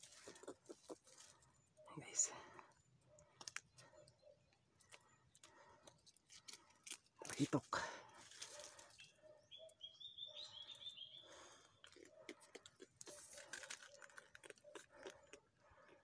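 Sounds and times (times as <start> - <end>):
hands handling fish in leaves: 6.2 - 9.0.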